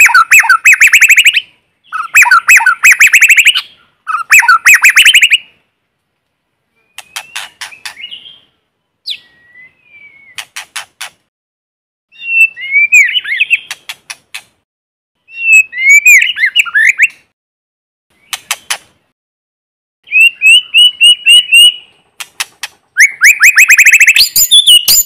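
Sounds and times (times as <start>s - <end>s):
bird whistling song: 0.0s - 5.6s, 6.8s - 10.4s, 12.1s - 13.8s, 15.3s - 17.2s, 20.0s - 22.0s, 23.0s - 25.0s
bird sharp clicking notes: 7.0s - 8.1s, 18.2s - 18.9s, 21.3s - 25.0s.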